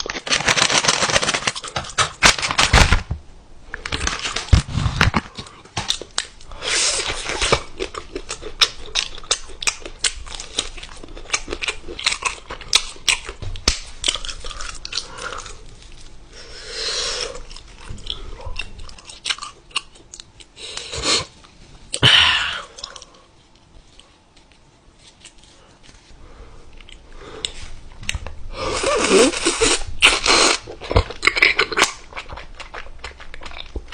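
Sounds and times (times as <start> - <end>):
person chewing food: 4.0 - 16.5, 17.1 - 22.0, 26.7 - 33.9.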